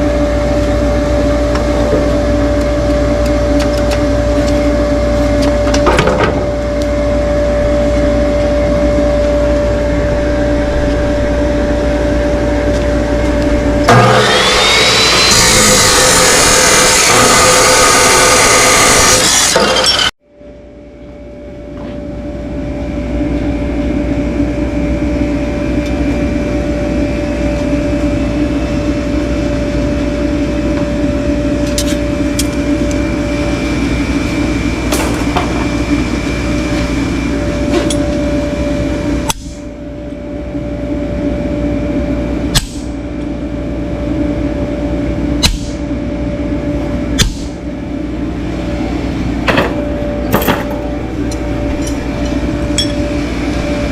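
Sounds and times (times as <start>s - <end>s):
electric power tool motor humming: 12.8s - 20.1s.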